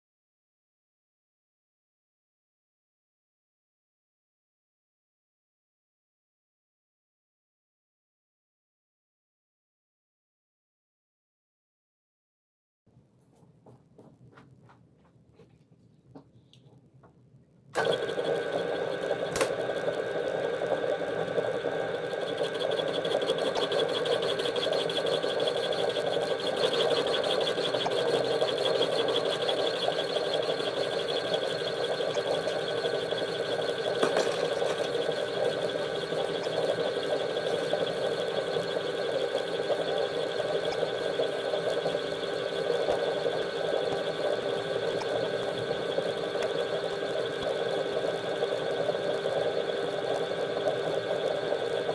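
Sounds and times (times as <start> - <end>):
small electric motor whining: 17.8 - 51.9.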